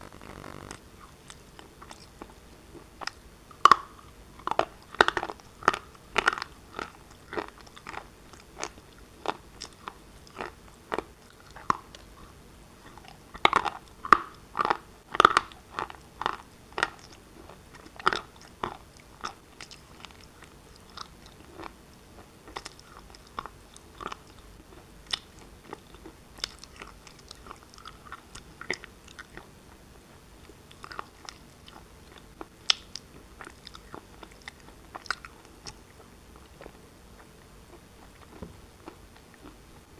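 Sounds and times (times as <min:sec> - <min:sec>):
brittle crunching while chewing: 0:03.0 - 0:12.0, 0:12.9 - 0:21.8.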